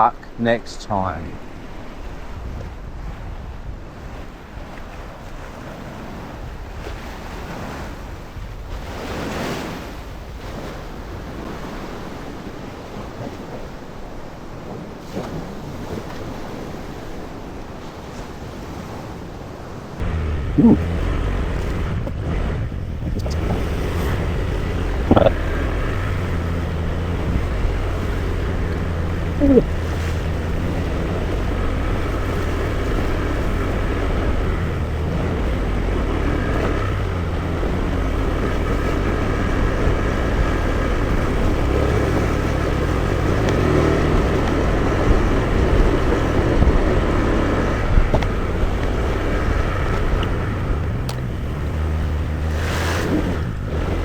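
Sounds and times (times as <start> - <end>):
wind and road noise: 0.0 - 54.0
scooter engine hum: 1.4 - 54.0.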